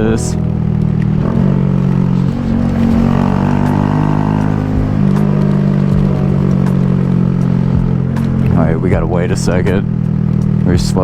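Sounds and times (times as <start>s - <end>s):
small motorcycle engine running: 0.0s - 11.0s.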